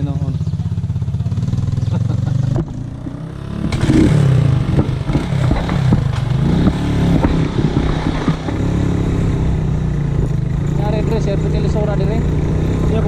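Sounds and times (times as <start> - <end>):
motorcycle engine revving: 0.0 - 13.0
clattering knocks and rattles: 3.6 - 8.7.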